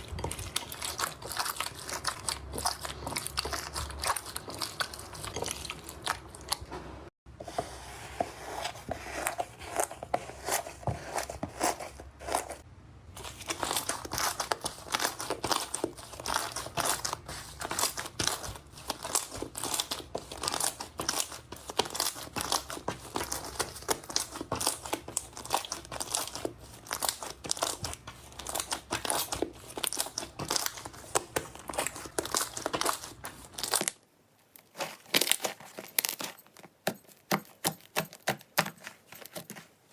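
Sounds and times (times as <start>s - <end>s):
slime crackling and popping: 13.4s - 34.0s.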